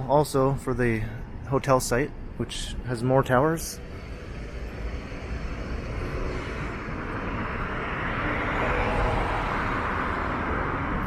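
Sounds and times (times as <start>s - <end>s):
vehicle passing with tyre noise: 3.8s - 11.0s.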